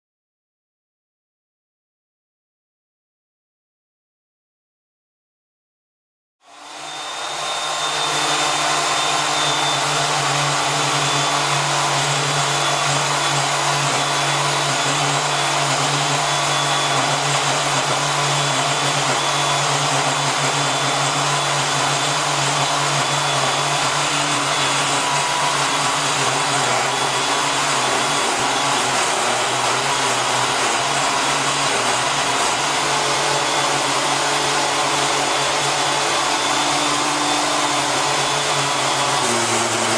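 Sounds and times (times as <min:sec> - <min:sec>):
electric power tool running: 0:06.4 - 0:39.9.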